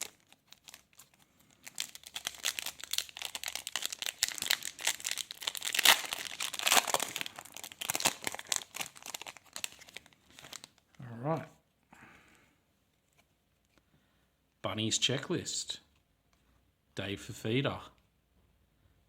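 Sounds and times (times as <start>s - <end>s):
plastic wrapper tearing and crinkling: 0.0s - 11.0s.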